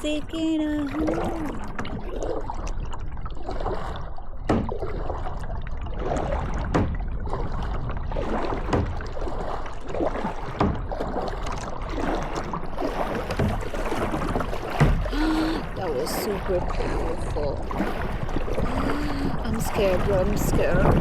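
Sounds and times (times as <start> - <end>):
water rushing around kayak: 0.0 - 21.0
sharp knocks: 4.5 - 5.0, 6.6 - 7.1, 8.6 - 9.2, 10.5 - 11.2, 13.3 - 15.1.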